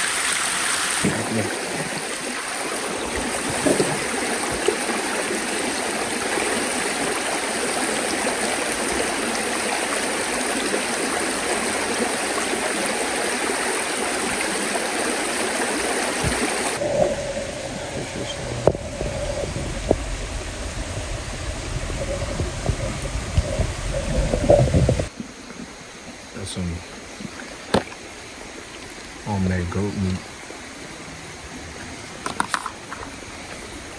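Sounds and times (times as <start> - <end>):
creek water rushing: 0.0 - 33.9
low rumble: 16.8 - 25.1.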